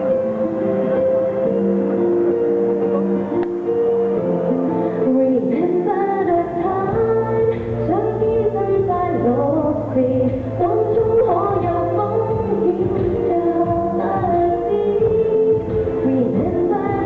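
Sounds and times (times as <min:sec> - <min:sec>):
instrumental backing music: 0:00.0 - 0:17.0
woman singing a pop song: 0:05.0 - 0:17.0.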